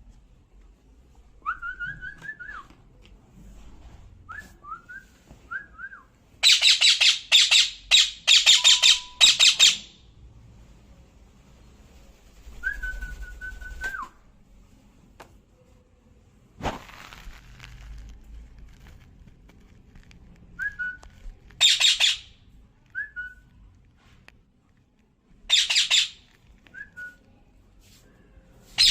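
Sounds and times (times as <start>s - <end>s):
parrot whistling: 5.8s - 10.0s, 21.6s - 22.3s, 25.5s - 26.2s
parrot squawking: 6.4s - 10.0s, 21.6s - 22.4s, 25.5s - 26.2s.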